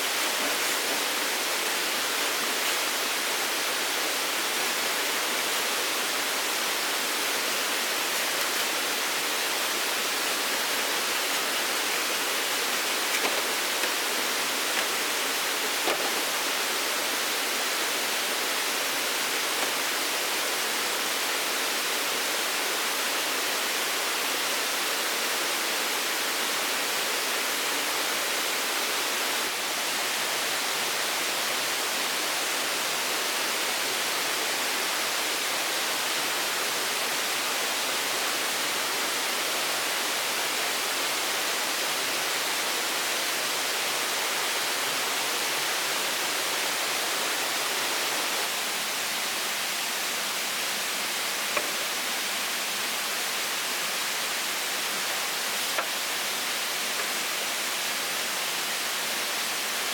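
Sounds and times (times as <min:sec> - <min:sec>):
water rushing: 0:00.0 - 0:24.2.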